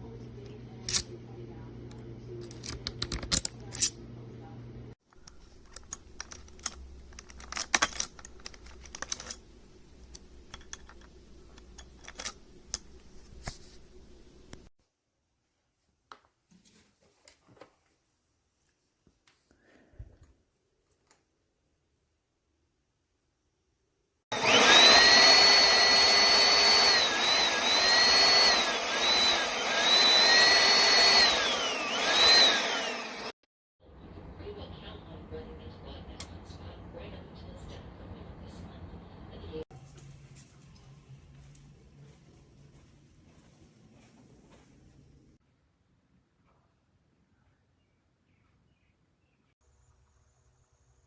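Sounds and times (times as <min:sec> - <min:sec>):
upright vacuum high-pitched whine: 0:24.3 - 0:33.4.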